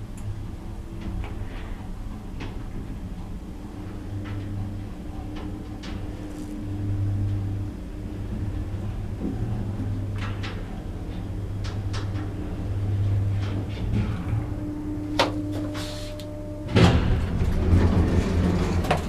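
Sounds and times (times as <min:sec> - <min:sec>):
lift motor hum: 0:00.0 - 0:19.0.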